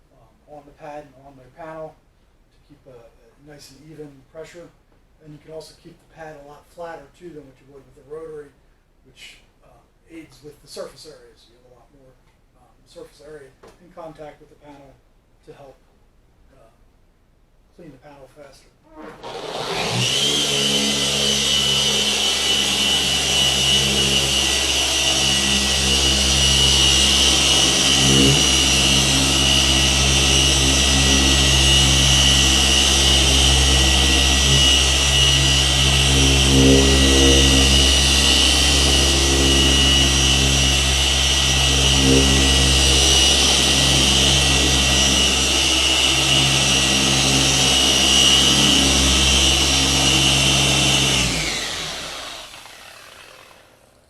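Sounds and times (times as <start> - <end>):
orbital polisher running: 18.9 - 54.0.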